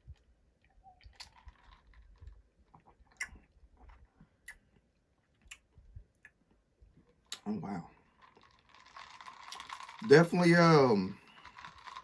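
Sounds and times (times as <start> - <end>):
wet mouth clicks and smacks: 1.0 - 1.5, 2.7 - 4.8, 5.4 - 6.4, 7.3 - 7.5.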